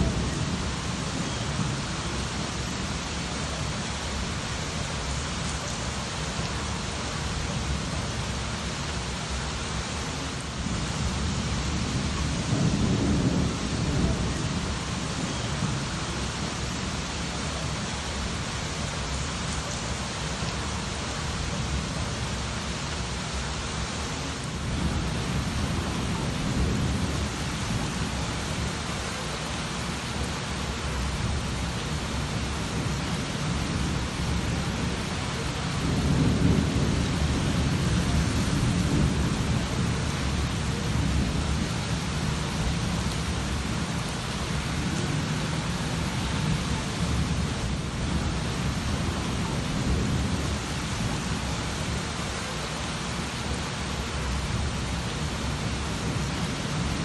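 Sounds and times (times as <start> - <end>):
thunder rumbling: 0.0 - 3.0, 10.6 - 18.3, 24.4 - 29.4, 30.9 - 52.0
heavy rain hissing: 0.0 - 57.0.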